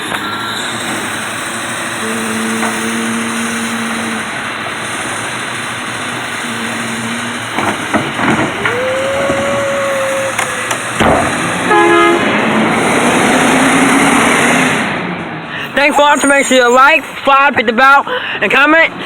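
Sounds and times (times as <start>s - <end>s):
rising whine: 0.0s - 14.6s
garbage truck engine running: 0.0s - 19.0s
horn-like tone: 2.0s - 4.4s, 6.4s - 7.6s, 11.7s - 12.3s.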